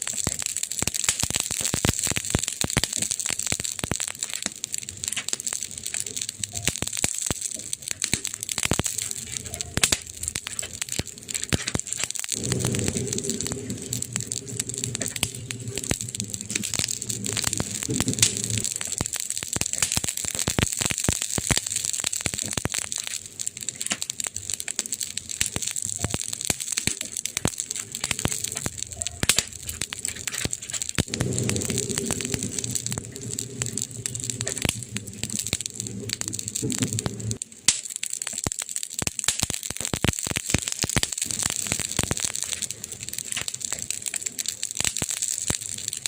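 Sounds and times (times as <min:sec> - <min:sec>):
wood fire crackling and popping: 0:00.0 - 0:46.0
low rumble: 0:09.0 - 0:19.2, 0:27.3 - 0:37.4.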